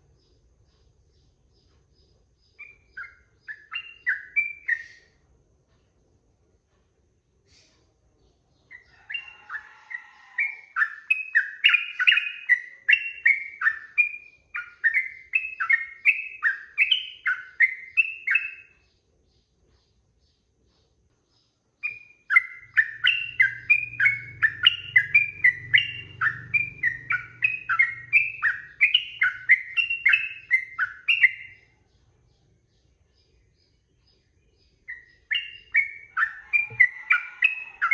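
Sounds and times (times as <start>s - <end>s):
bulbul singing whistled notes: 2.6s - 5.2s, 10.4s - 18.8s, 21.8s - 31.7s, 34.8s - 37.9s.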